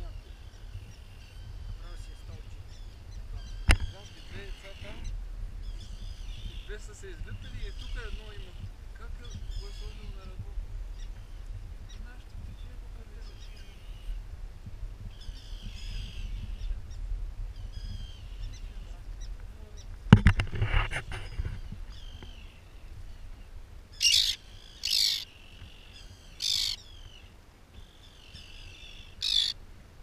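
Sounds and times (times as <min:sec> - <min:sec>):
birds chirping: 0:00.0 - 0:14.2, 0:15.0 - 0:29.6
harsh short bird calls: 0:23.9 - 0:29.6.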